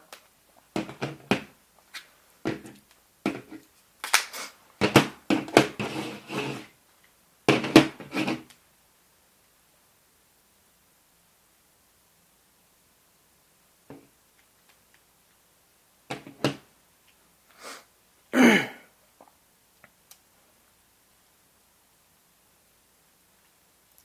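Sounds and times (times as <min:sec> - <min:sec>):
phones clacking on hard surface: 0:07.5 - 0:08.4.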